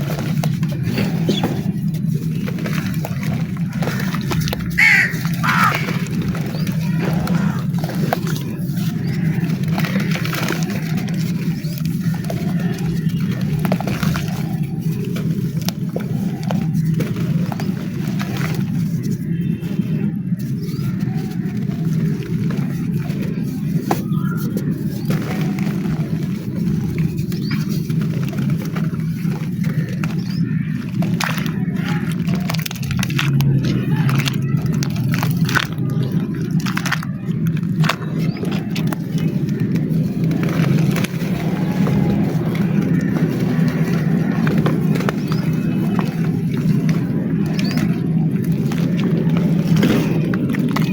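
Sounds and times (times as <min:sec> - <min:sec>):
dry clay crunching: 0:00.0 - 0:50.9
sharp little cracks: 0:20.5 - 0:50.9.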